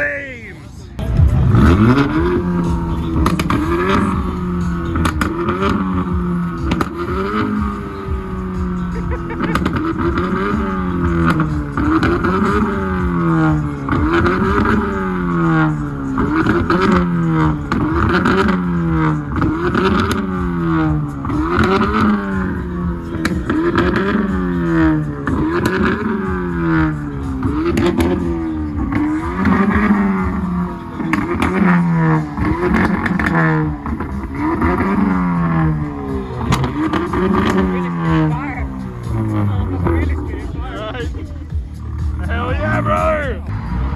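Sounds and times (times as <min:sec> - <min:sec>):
car engine revving: 0:00.7 - 0:43.9.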